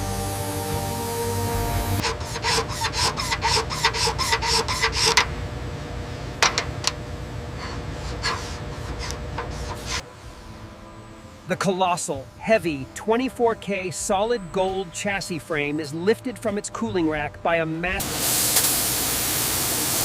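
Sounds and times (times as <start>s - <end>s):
steady low hum: 0.0s - 19.6s
rasping scrape strokes: 2.0s - 5.3s, 7.5s - 10.1s.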